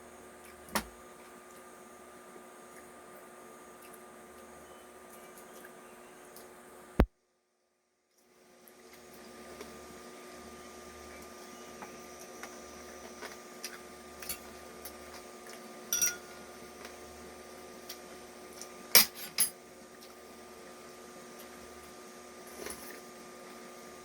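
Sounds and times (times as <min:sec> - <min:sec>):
utensils and dishes clinking: 0:15.9 - 0:16.4, 0:19.0 - 0:19.6.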